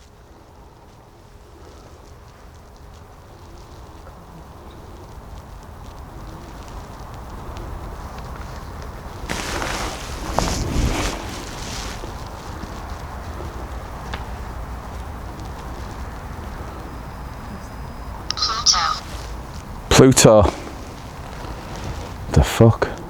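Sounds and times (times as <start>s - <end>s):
wind buffeting microphone: 2.6s - 17.4s.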